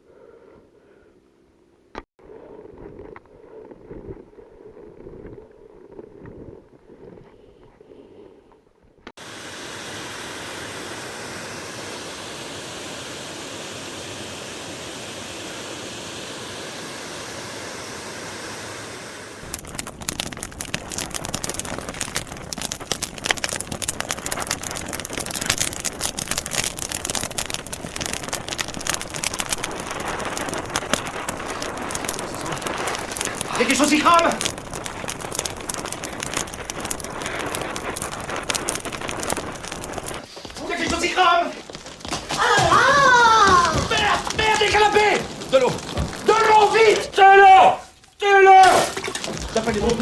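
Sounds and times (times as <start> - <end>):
steady hiss: 9.2 - 40.2
burning logs crackling: 9.2 - 50.0.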